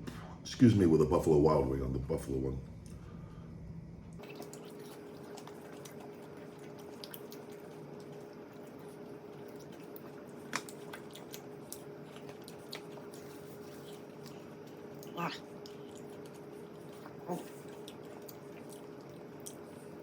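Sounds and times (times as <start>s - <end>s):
faint hum: 0.0s - 20.0s
wet chewing and mouth smacks: 4.2s - 20.0s.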